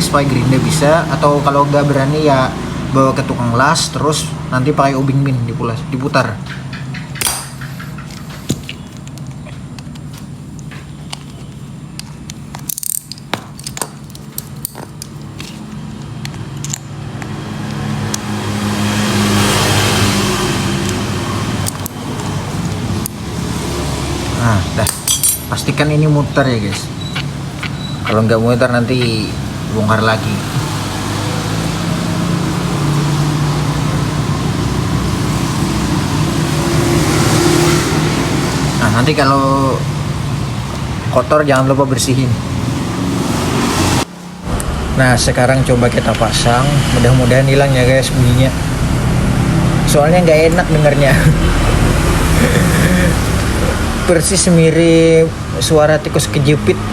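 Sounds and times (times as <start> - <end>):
vehicle engine hum: 0.0 - 56.9
hand tools clicking on metal: 6.5 - 11.4, 12.0 - 18.3, 24.8 - 25.9.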